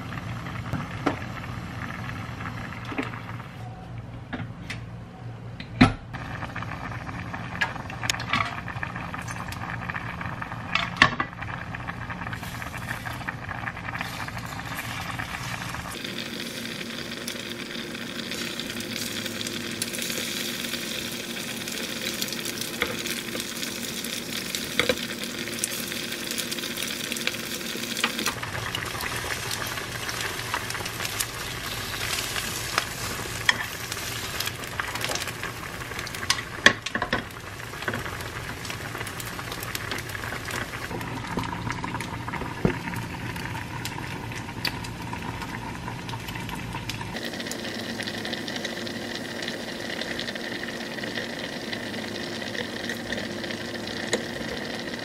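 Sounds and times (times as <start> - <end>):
food sizzling in oil: 12.3 - 55.0.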